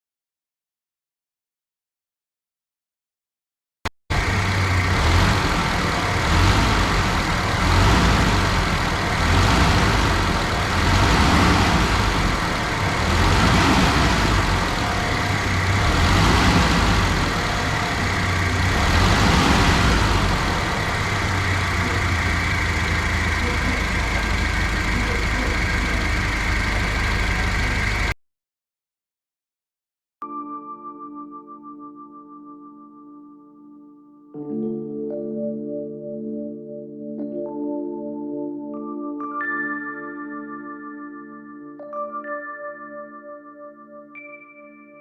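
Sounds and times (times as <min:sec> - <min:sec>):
truck diesel engine running: 0:04.1 - 0:28.2.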